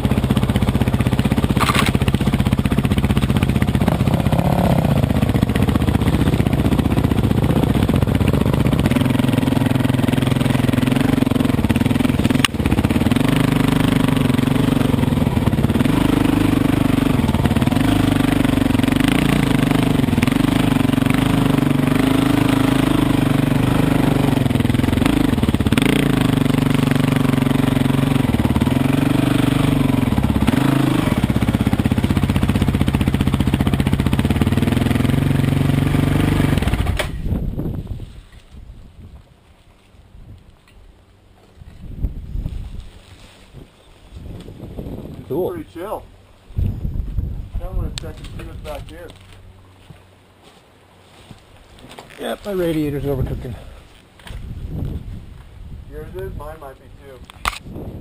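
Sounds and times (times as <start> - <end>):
dirt bike engine: 0.0 - 38.4.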